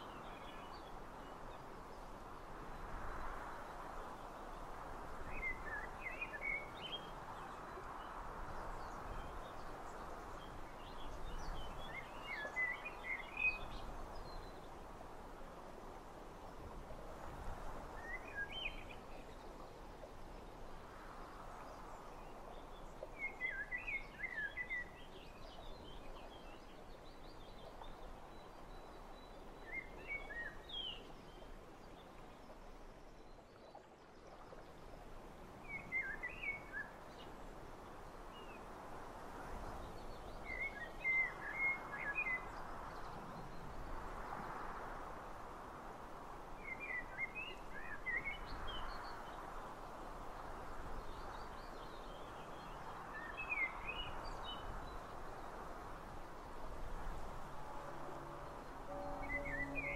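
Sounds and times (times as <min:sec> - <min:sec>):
songbird twittering: 0:57.6 - 0:59.9.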